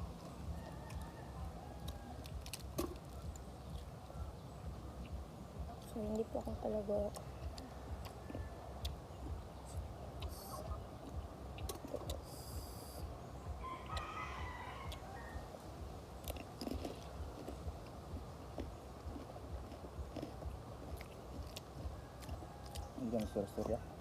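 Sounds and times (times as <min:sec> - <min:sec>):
bird calling: 0:00.0 - 0:15.6.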